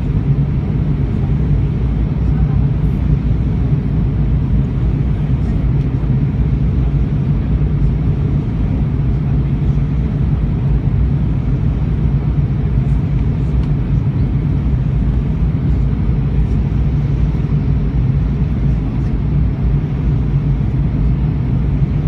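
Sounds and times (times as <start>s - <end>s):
airliner cabin engine rumble: 0.0s - 22.0s.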